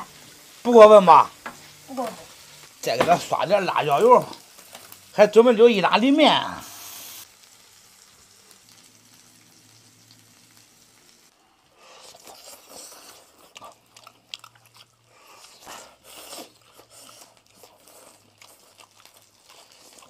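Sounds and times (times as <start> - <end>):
sizzling on a griddle: 0.0 - 13.9, 14.6 - 20.0
people biting and chewing: 11.9 - 20.0.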